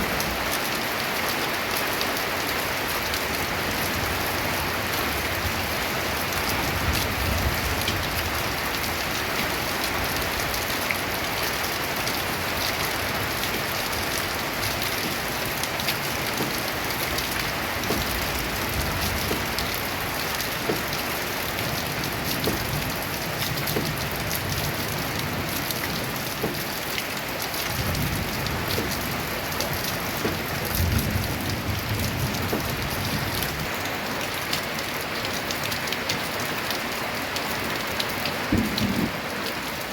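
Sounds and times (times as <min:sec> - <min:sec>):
rain on a tin roof: 0:00.0 - 0:39.9
low rumbles: 0:38.5 - 0:39.3.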